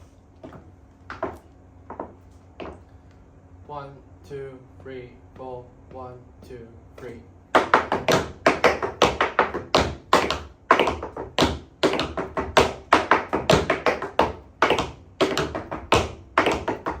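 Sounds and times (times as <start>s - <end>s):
tap shoes on wooden board: 0.4s - 2.8s, 7.5s - 17.0s.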